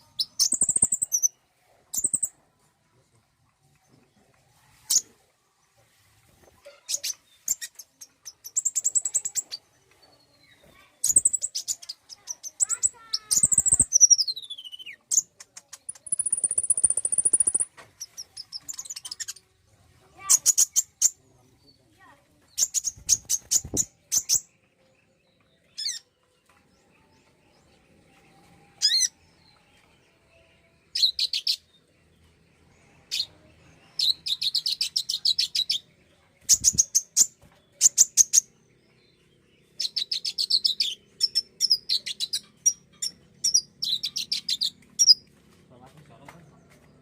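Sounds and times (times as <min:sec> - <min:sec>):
sunbird chirping trills: 0:00.0 - 0:02.4, 0:06.6 - 0:19.5, 0:27.0 - 0:45.3.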